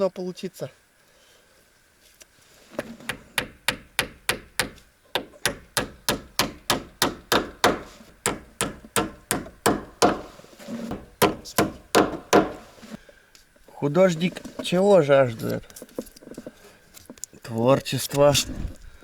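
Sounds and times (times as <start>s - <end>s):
hammer striking wood: 2.8s - 13.0s.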